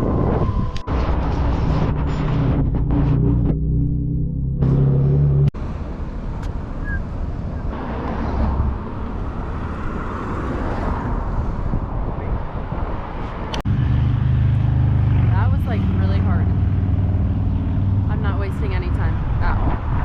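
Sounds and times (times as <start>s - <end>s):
traffic rushing: 0.0s - 20.0s
vehicle passing: 13.0s - 20.0s.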